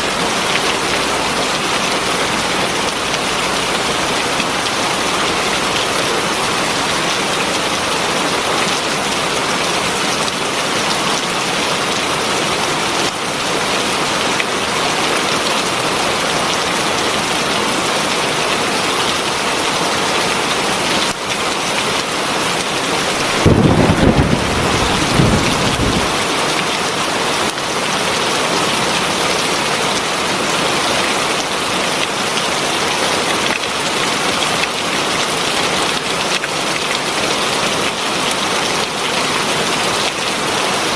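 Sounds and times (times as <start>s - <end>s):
heavy rain falling: 0.0s - 40.9s
low rumble of thunder: 23.2s - 26.3s.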